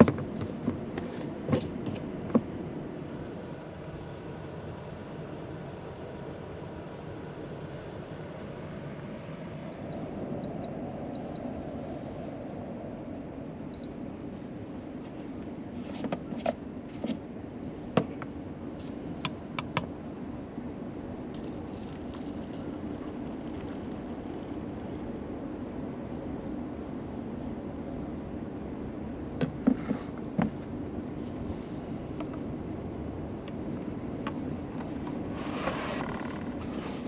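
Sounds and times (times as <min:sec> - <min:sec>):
low rushing hum: 0:00.0 - 0:37.0
short high beeps: 0:09.7 - 0:11.4.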